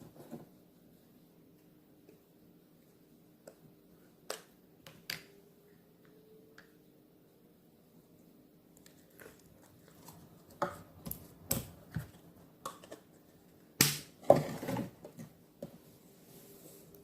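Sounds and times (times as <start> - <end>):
slime squishes: 8.7 - 12.2.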